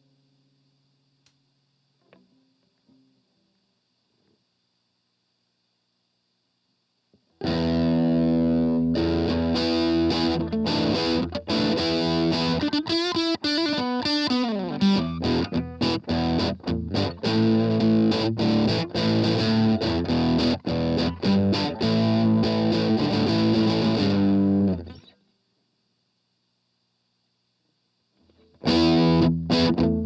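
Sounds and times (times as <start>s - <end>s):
distorted electric guitar chords: 7.4s - 25.1s, 28.4s - 30.0s.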